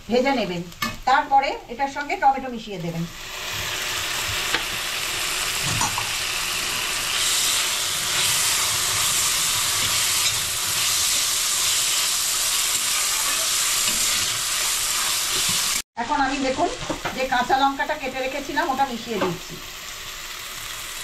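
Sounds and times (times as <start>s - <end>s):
tomatoes sizzling in hot fat: 0.0s - 21.0s
steel spatula scraping pan: 8.1s - 15.8s.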